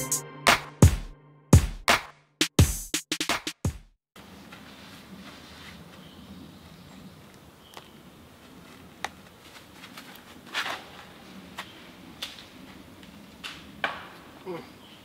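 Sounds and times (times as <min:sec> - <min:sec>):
quiet outdoor background: 0:04.2 - 0:15.0.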